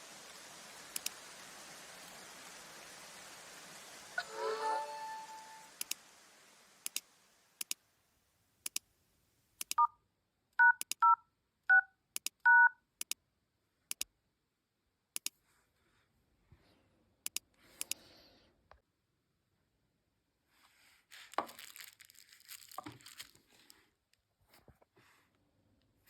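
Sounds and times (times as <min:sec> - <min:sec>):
touch-tone keypad beeps: 0:10.6 - 0:12.8.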